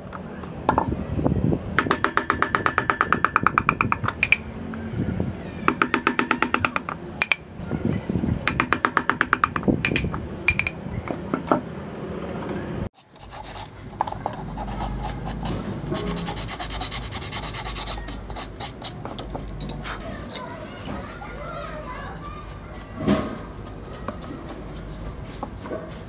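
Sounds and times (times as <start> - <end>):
rasp scraping on wood: 13.0 - 19.2.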